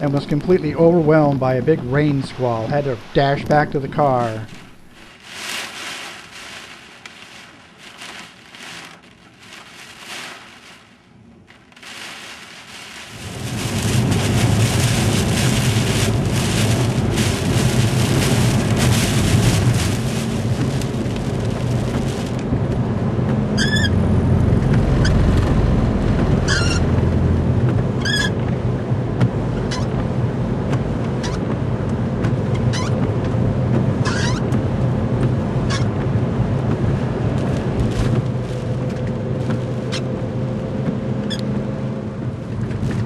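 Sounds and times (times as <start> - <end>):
deep rumble: 0.0 - 43.0
wind-driven rain: 0.0 - 43.0
short squeaks: 23.6 - 24.0, 26.4 - 26.9, 28.0 - 28.4, 29.7 - 29.9, 32.5 - 33.0, 34.0 - 34.5.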